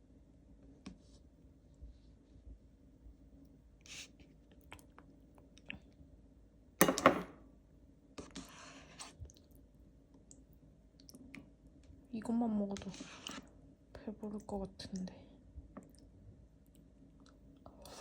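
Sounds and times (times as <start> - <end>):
dishes clattering: 6.8 - 7.4.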